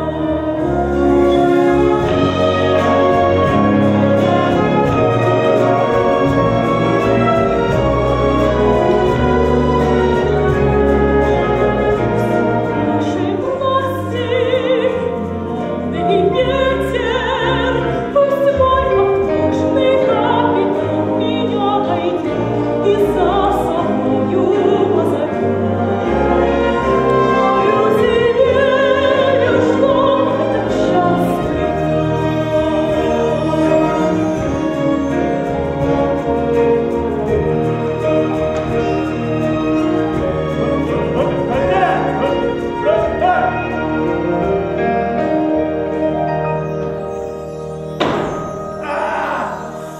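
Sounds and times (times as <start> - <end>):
orchestra playing: 0.0 - 49.9
woman singing operatically: 12.9 - 34.4.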